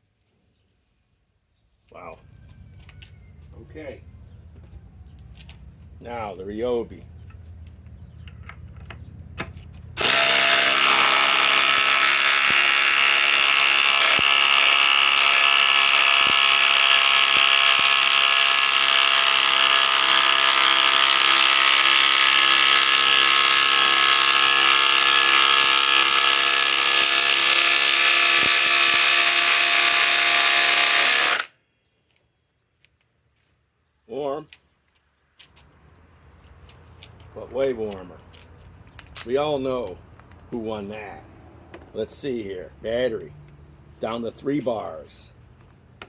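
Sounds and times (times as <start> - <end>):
impact driver hammering: 9.4 - 31.5.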